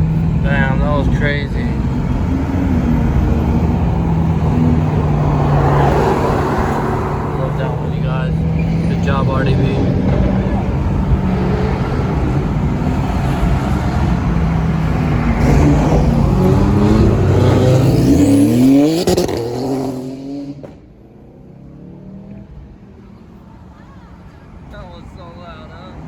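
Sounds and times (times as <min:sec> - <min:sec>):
car engine revving: 0:00.0 - 0:23.5.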